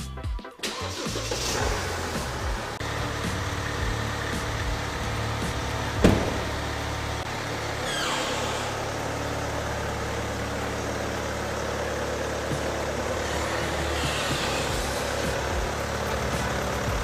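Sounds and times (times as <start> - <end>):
car engine humming: 0.8 - 17.0
sharp knock: 6.0 - 6.6
falling squeal: 7.7 - 9.2, 13.2 - 15.3.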